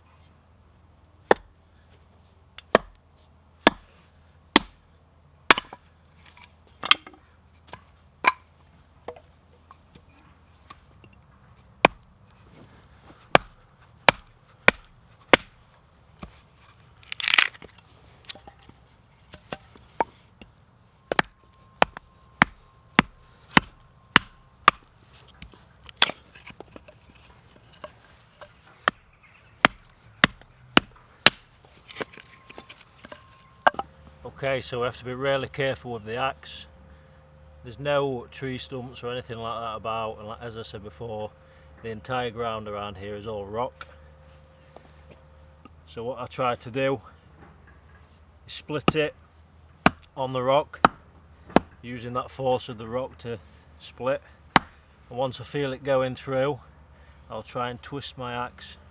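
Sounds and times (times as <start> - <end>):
axe striking firewood: 1.3 - 1.5, 2.6 - 3.0, 3.6 - 3.9, 4.5 - 4.8, 5.5 - 5.9, 6.8 - 8.4, 11.8 - 12.1, 13.3 - 15.6, 17.0 - 17.7, 21.1 - 33.9, 49.8 - 50.1, 50.8 - 51.8, 54.5 - 54.8
loud wood crack: 17.0 - 17.8, 29.6 - 32.3.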